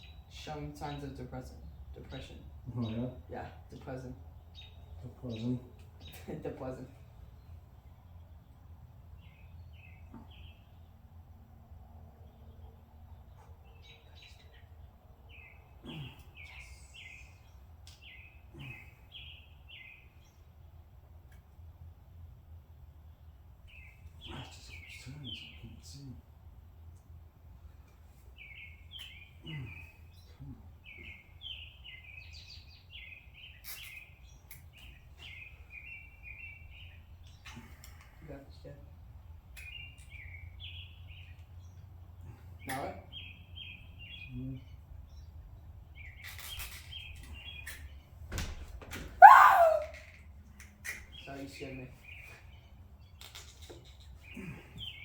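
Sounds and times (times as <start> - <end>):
bird chirping: 12.2 - 20.6, 27.8 - 38.1, 39.4 - 42.0, 42.6 - 48.1, 49.2 - 55.0.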